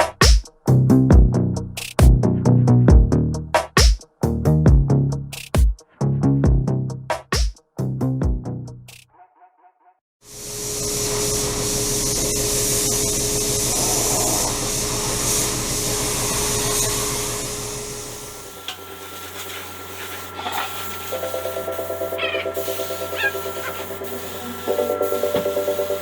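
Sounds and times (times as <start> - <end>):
power tool humming and hissing: 10.3 - 26.0
rhythmic rubbing: 19.0 - 26.0.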